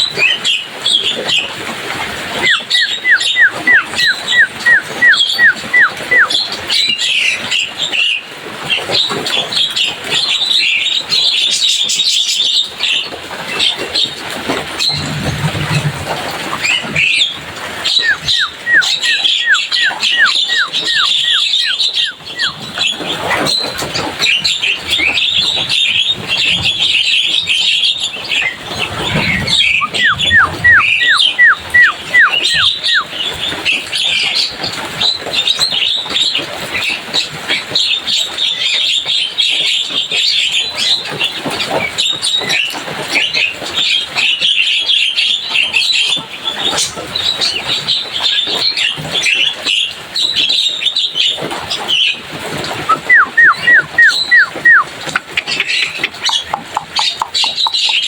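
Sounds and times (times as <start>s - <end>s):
down-slurred whistles: 2.4s - 6.4s, 17.8s - 23.6s, 28.9s - 33.2s, 52.9s - 54.9s
myna chattering: 28.8s - 33.0s, 52.9s - 58.0s.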